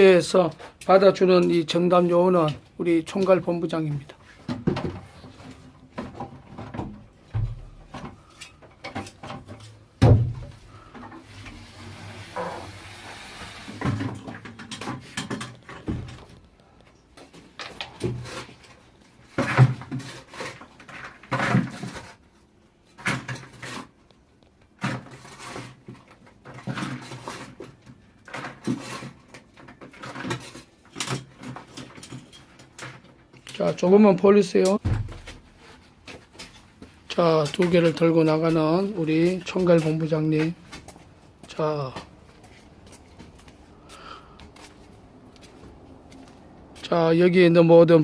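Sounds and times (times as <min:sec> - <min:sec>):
buckets of rock handled: 0:00.1 - 0:16.6, 0:17.2 - 0:45.0
loud thumps: 0:10.0 - 0:10.6
knocks and scrapes of digging: 0:17.2 - 0:33.9.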